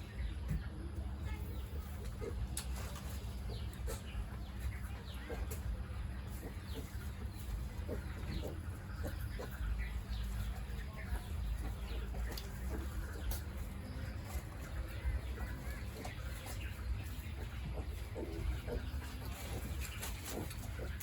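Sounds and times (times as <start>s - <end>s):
farm animals squeaky calls: 0.0s - 21.0s
steady low hum: 0.0s - 21.0s.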